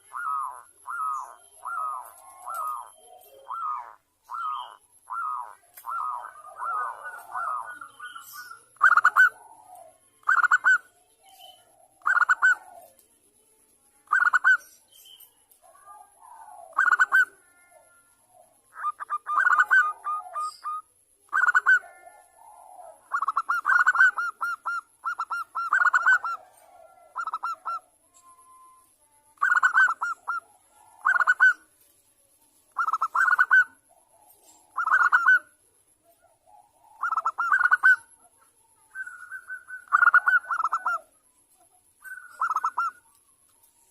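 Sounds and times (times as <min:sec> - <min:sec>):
soft warbling coos: 0:00.0 - 0:08.0
dove cooing: 0:00.0 - 0:13.1, 0:14.0 - 0:14.7, 0:15.6 - 0:31.7, 0:32.7 - 0:43.2.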